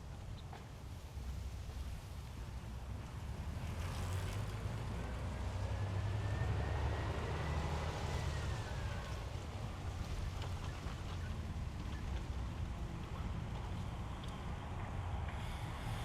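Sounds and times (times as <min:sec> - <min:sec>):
vehicle passing: 0:03.3 - 0:10.6.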